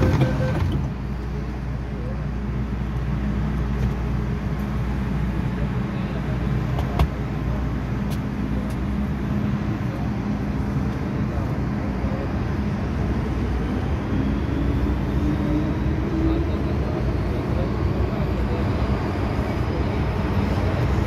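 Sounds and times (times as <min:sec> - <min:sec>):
train interior rumble and hum: 0:00.0 - 0:21.0.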